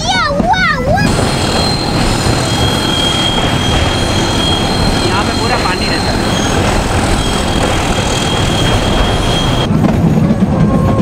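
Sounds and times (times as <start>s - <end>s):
train wheels rumbling on track: 0.0s - 11.0s
high wheel squeal: 1.1s - 9.7s.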